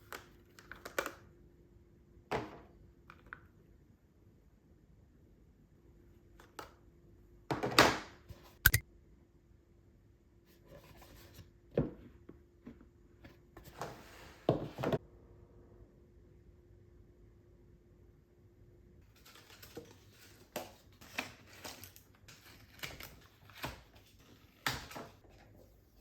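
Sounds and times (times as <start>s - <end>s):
sharp click: 8.6s - 8.8s.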